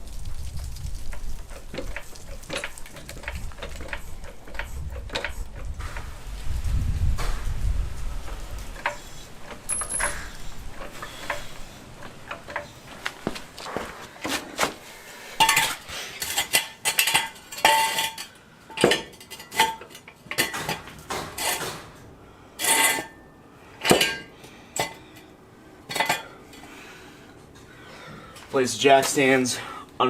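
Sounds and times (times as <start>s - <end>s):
metal jack clanking: 1.5s - 5.7s, 8.8s - 12.7s, 15.4s - 21.8s.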